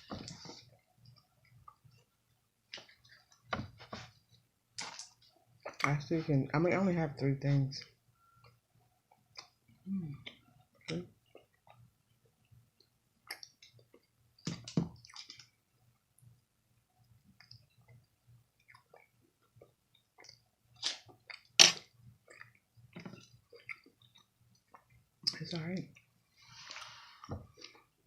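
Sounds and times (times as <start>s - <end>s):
chewing food: 7.8s - 16.4s, 17.0s - 28.0s.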